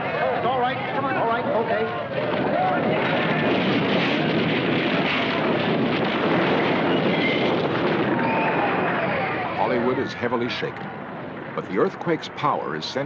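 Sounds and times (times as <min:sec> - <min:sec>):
earthquake roaring rumble: 0:02.0 - 0:10.1.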